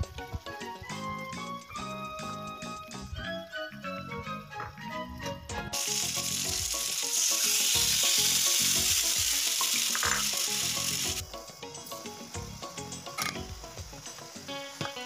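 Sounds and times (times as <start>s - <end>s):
chicken sizzling in hot oil: 5.6s - 15.0s
water poured into hot pan: 5.7s - 11.2s.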